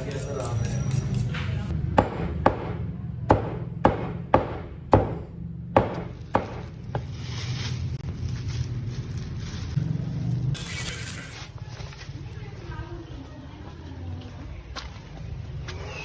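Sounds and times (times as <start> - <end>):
knife chopping on cutting board: 2.0 - 7.1.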